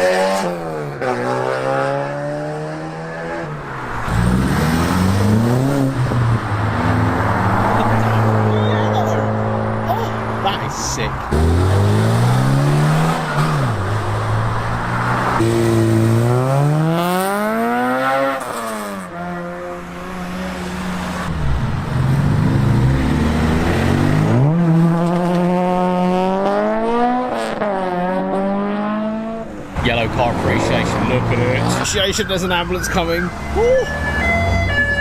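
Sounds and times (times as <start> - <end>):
car engines accelerating: 0.0 - 35.0.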